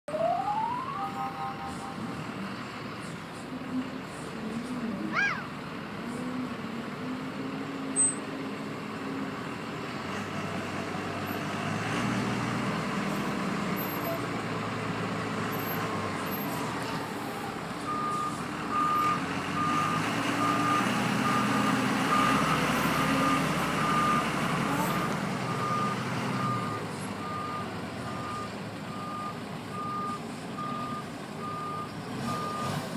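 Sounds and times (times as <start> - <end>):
reversing alarm beeping: 0.1 - 2.2, 17.9 - 24.4, 25.5 - 32.8
heavy diesel machinery running: 0.4 - 32.9.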